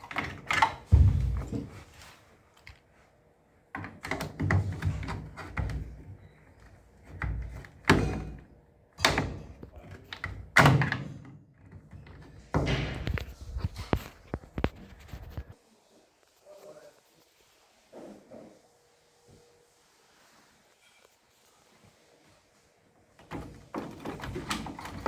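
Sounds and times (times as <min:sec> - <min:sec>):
thuds and knocks: 0:00.9 - 0:01.8.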